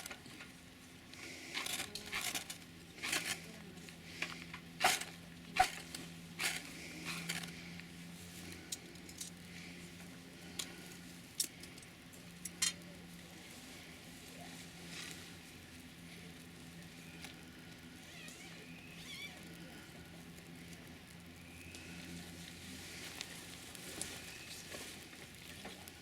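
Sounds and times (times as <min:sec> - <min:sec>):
steady low hum: 0:00.0 - 0:26.0
small objects clicking and rustling: 0:01.2 - 0:07.7, 0:08.5 - 0:09.4, 0:10.5 - 0:12.9.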